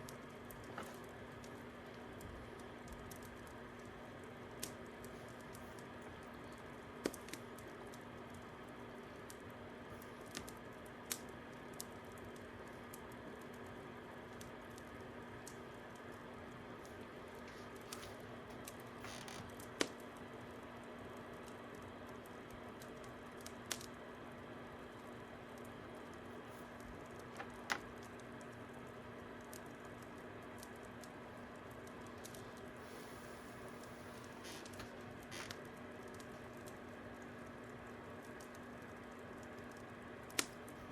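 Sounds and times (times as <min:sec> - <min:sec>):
fire crackling: 0:00.0 - 0:40.9
sharp pops from fire: 0:04.5 - 0:08.5, 0:38.2 - 0:40.8.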